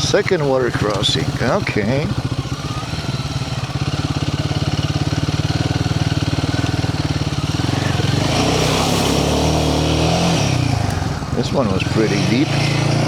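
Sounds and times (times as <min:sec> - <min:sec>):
motorcycle engine running: 0:00.0 - 0:13.0
water splashing: 0:06.8 - 0:12.0.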